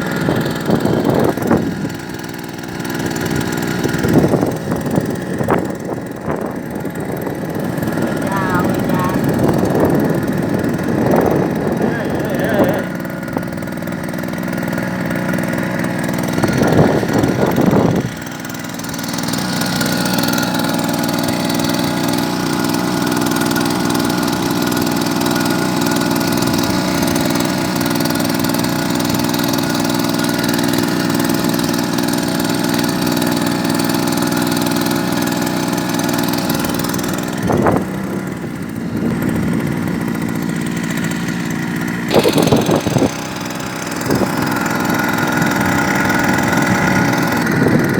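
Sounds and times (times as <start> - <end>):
small boat engine running: 0.0 - 47.9.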